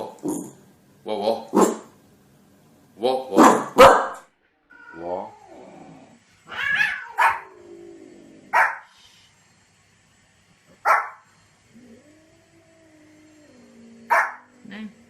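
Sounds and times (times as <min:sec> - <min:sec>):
dog barking: 0:01.5 - 0:01.9, 0:03.4 - 0:04.2, 0:07.0 - 0:07.5, 0:08.5 - 0:08.9, 0:10.8 - 0:11.2, 0:14.1 - 0:14.5.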